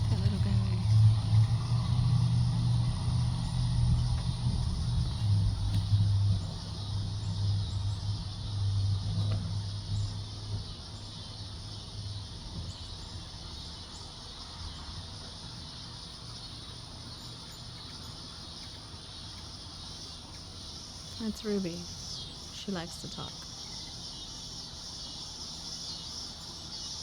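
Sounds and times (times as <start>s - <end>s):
low rumble: 0.0s - 11.0s
insect hiss: 0.0s - 27.0s.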